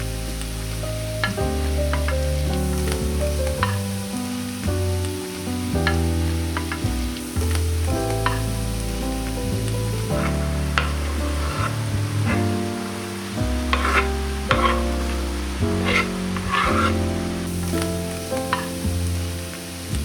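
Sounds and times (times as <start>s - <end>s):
background music with bass: 0.0s - 20.0s
food sizzling in a frying pan: 6.2s - 11.9s, 12.6s - 19.9s.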